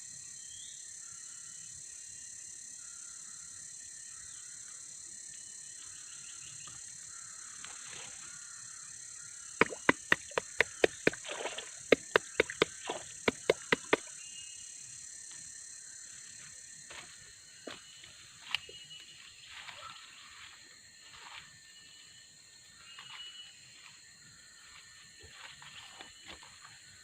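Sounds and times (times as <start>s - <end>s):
high insect drone: 0.2s - 27.0s
sharp knocks or chops: 9.6s - 11.3s, 11.9s - 14.0s.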